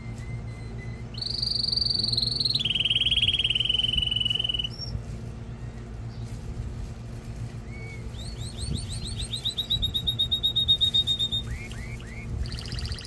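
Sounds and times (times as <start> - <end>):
canary trilling: 0.0 - 5.0, 7.7 - 13.0
low steady hum: 0.0 - 13.0.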